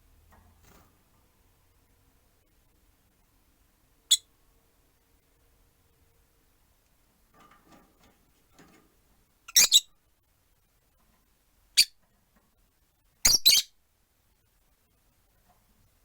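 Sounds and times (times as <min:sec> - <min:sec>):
lovebirds shrill calls: 0:09.5 - 0:09.9, 0:13.3 - 0:13.7.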